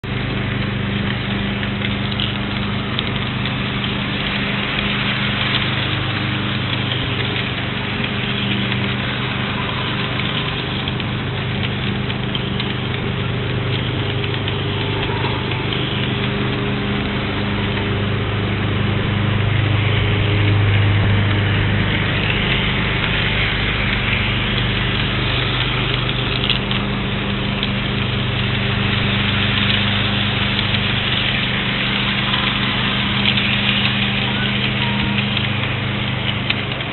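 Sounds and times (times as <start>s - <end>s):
engine idling: 0.0s - 36.9s.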